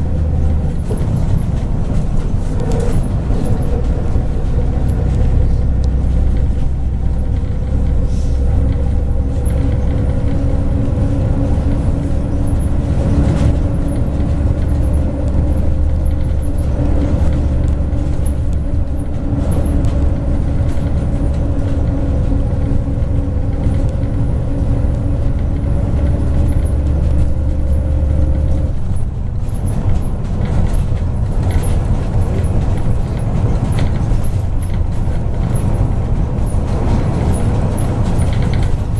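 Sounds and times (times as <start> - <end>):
bus engine drone: 0.0 - 38.9
road noise: 0.0 - 38.9.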